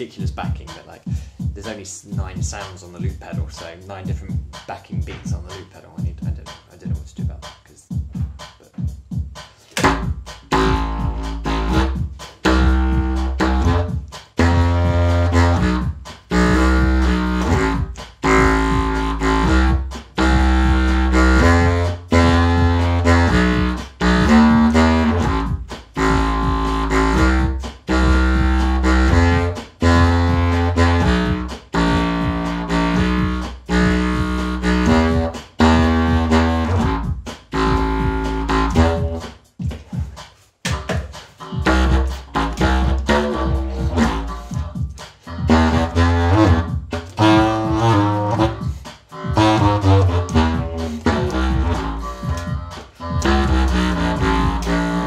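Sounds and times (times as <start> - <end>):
deep bass line: 0.0 - 39.3, 41.4 - 55.0
drum machine beat: 0.0 - 55.0
clarinet playing a tune: 9.8 - 39.2, 41.5 - 44.6, 45.3 - 55.0.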